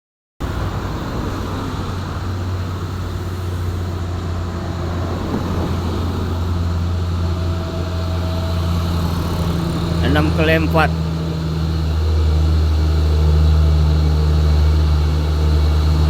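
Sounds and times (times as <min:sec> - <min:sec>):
truck diesel engine droning: 0:00.4 - 0:16.0.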